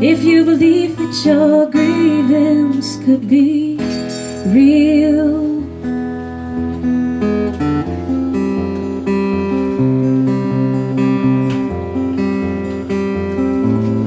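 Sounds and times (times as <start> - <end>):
person singing: 0.0 - 3.8
acoustic guitar strumming chords: 0.0 - 14.0.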